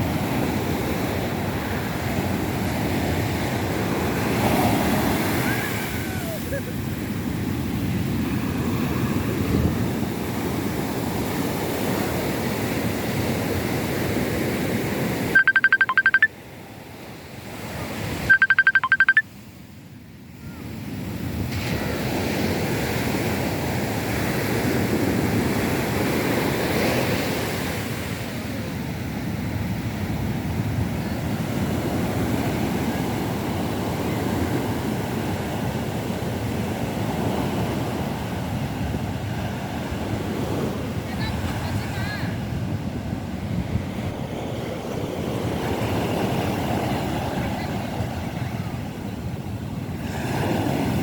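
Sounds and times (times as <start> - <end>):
waves washing onto beach: 0.0 - 51.0
rapid high electronic beeping: 15.4 - 16.3, 18.3 - 19.2.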